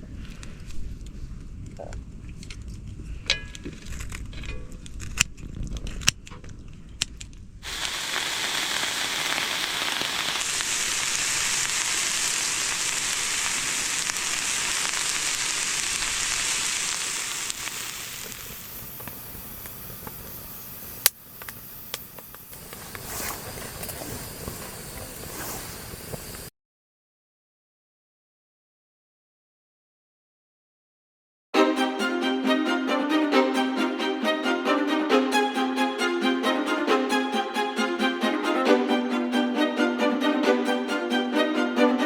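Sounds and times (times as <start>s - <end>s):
food sizzling in a hot pan: 7.6s - 26.5s.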